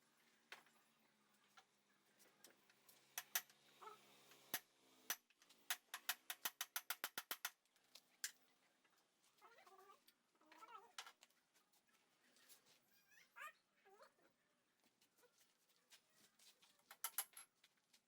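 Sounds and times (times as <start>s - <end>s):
sharp clicks and taps: 3.2s - 3.5s, 4.5s - 7.6s.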